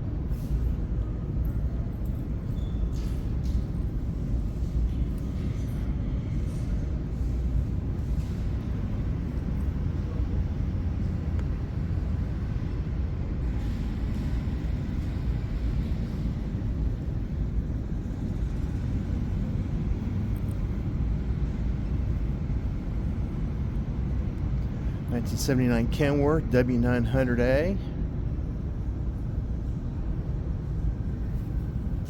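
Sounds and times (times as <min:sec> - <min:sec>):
exhibition hall low rumble: 0:00.0 - 0:32.0.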